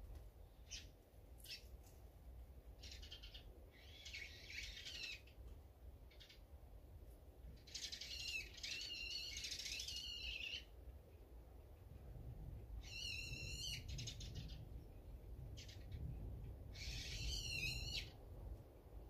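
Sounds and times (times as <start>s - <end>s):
songbirds calling: 0.4s - 1.8s, 2.8s - 6.6s, 7.5s - 10.8s, 12.8s - 18.2s.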